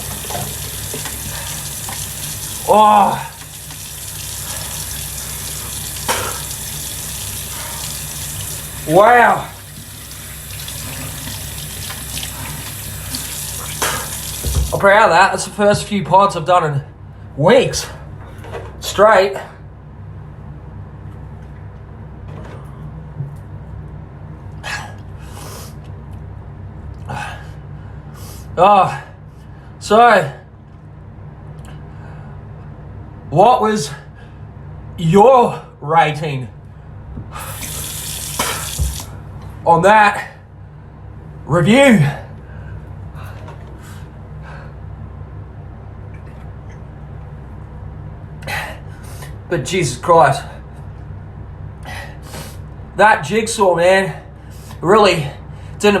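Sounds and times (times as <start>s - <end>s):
steady low hum: 0.0s - 56.0s
sharp noisy exhales: 6.1s - 6.6s, 37.3s - 38.8s, 51.8s - 52.7s
short sniffs: 24.7s - 25.8s, 51.9s - 52.6s
man breathing hard: 42.2s - 44.9s, 51.8s - 52.6s.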